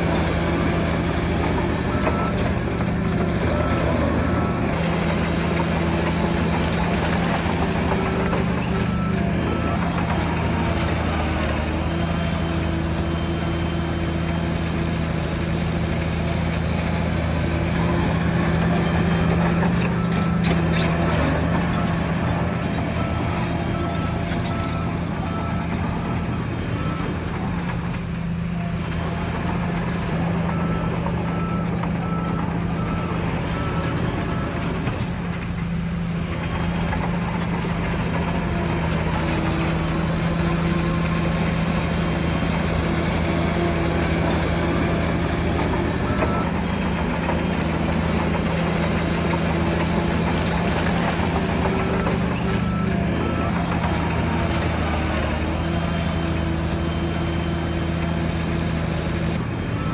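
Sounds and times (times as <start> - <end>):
diesel machinery engine drone: 0.0 - 59.9
reversing alarm beeping: 0.2 - 5.5, 6.1 - 14.3, 18.5 - 27.3, 44.2 - 58.4.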